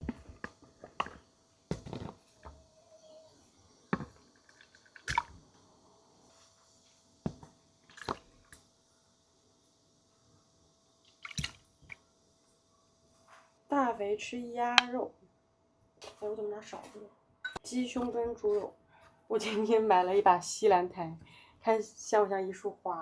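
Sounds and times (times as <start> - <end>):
wet squishing of food: 4.0 - 5.5, 11.1 - 12.0.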